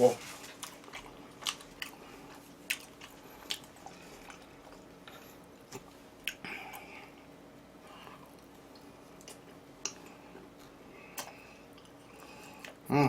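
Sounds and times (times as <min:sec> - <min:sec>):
wet chewing: 0:00.4 - 0:06.9.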